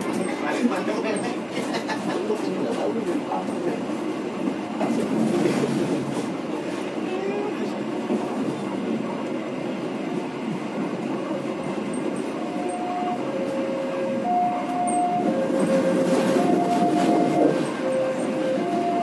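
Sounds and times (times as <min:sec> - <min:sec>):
train rumbling along track: 0:00.0 - 0:19.0
level crossing alarm two-tone: 0:14.2 - 0:15.3.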